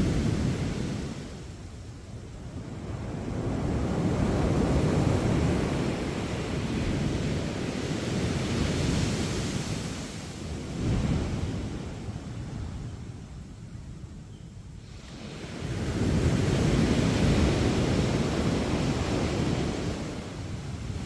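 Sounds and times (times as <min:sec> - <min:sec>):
wind buffeting microphone: 0:00.0 - 0:21.0
sea waves breaking on beach: 0:15.0 - 0:21.0.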